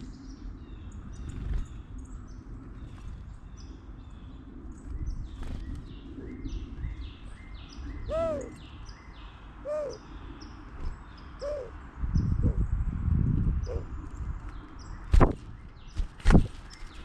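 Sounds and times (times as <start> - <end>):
small birds chirping rapidly: 0.0 - 17.0
lower arching bird calls: 7.6 - 12.6, 13.6 - 14.0.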